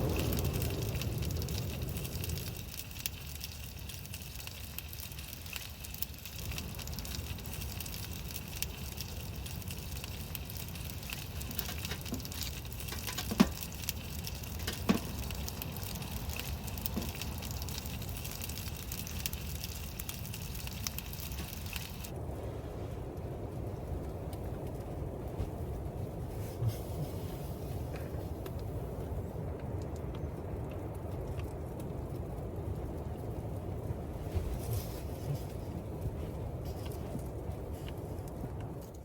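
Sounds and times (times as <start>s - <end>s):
sharp pops from fire: 0.0s - 22.1s
low rumble: 0.0s - 39.0s
wood fire crackling: 0.0s - 39.0s.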